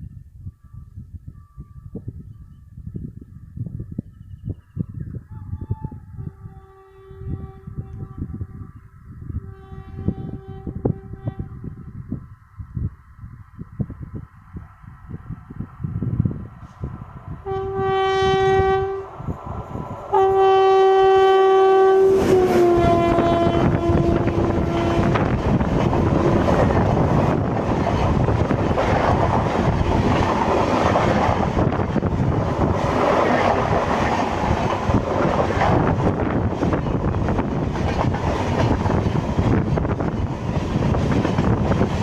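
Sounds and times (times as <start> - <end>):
locomotive horn blasts: 5.3 - 8.5, 9.4 - 11.6, 17.4 - 19.1, 20.1 - 25.4
train coaches rushing past: 22.0 - 42.0.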